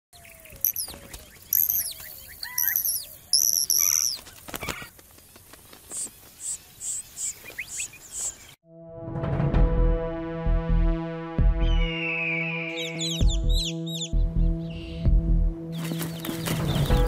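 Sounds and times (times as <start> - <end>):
birds whistling falling calls: 0.2 - 4.9, 5.8 - 8.6, 11.7 - 15.0
short high bird chirps: 0.6 - 4.2.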